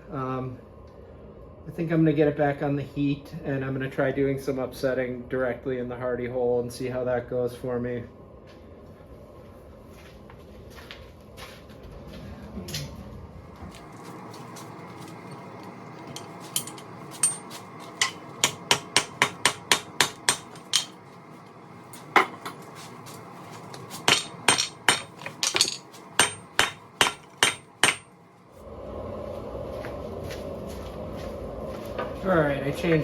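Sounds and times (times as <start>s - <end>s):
gas forge burner hissing: 13.5s - 33.0s
hammer striking steel on anvil: 16.1s - 21.0s, 23.9s - 28.2s.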